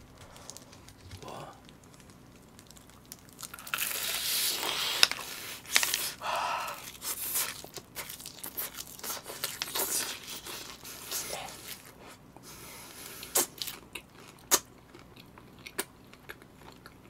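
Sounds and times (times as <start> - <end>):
crispy fried chicken crunching: 0.0 - 12.2, 13.0 - 17.0.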